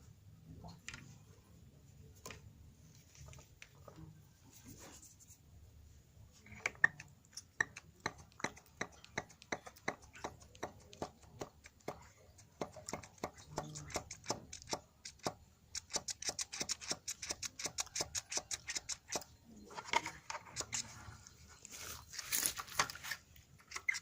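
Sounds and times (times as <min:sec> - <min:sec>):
faint handling noises: 0:00.0 - 0:08.0, 0:19.4 - 0:24.0.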